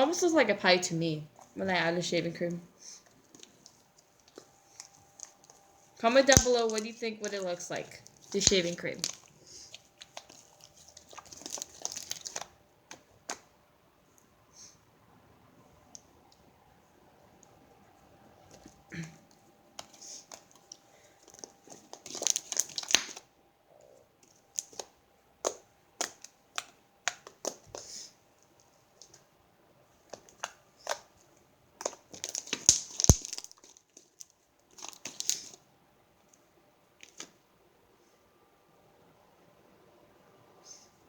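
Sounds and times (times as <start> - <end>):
slime crackling: 3.3 - 13.4, 19.8 - 23.3, 31.8 - 35.6
slime sticky clicks and pops: 6.3 - 6.8, 31.8 - 33.5.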